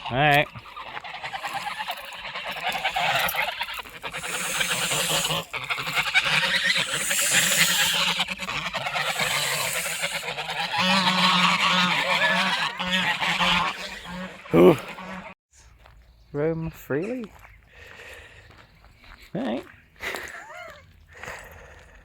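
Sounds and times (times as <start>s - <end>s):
geese honking: 0.0s - 15.4s.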